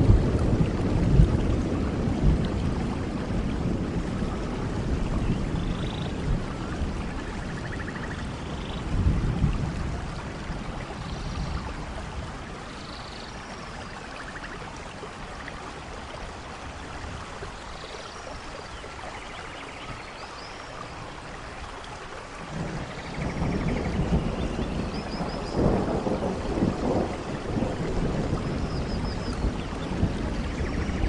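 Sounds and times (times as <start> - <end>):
rolling thunder: 0.0 - 12.3, 22.4 - 31.0
steady rain: 0.0 - 31.0.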